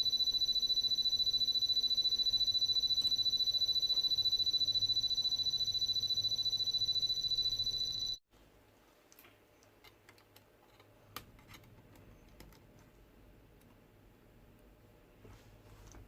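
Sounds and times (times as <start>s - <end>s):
high-pitched electronic beep: 0.0s - 8.2s.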